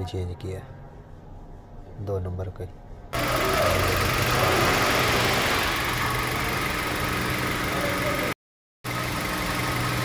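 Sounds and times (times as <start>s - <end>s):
car engine idling: 3.2s - 10.0s.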